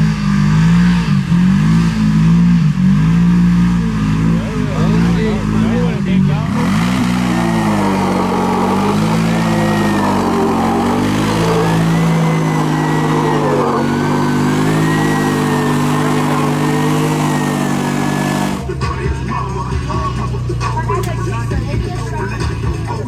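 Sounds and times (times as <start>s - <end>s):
engine revving hard: 0.0s - 23.0s
thin whine: 3.9s - 23.0s
music: 18.6s - 23.0s.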